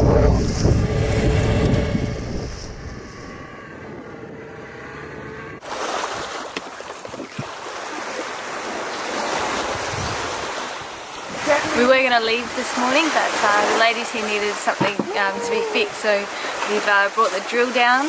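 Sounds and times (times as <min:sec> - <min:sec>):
wind buffeting microphone: 0:00.0 - 0:06.3, 0:09.3 - 0:16.9
boat and water noise: 0:00.0 - 0:18.0
waves rushing: 0:05.6 - 0:18.0.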